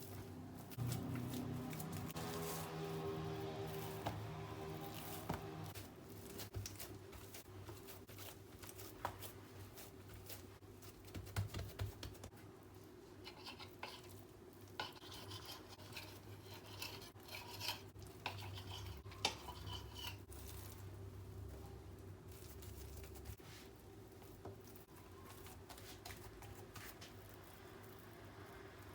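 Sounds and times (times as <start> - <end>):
scraping or rubbing: 0.0 - 10.6, 14.8 - 20.9.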